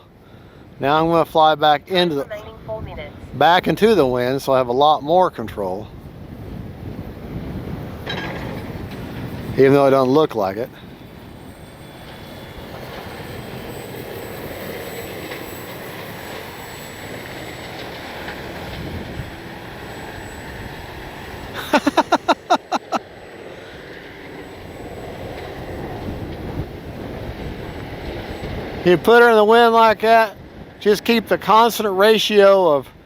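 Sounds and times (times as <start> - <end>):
wind on microphone: 2.4 - 4.2, 5.9 - 9.7, 24.9 - 29.0
distant electric motor drone: 5.9 - 33.0.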